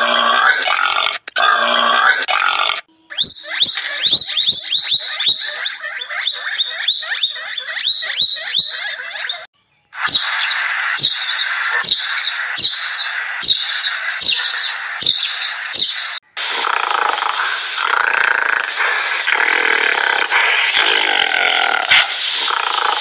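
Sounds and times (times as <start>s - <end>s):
rapid high chirps: 3.1s - 16.2s
sparrows chirping and chattering: 3.1s - 16.2s.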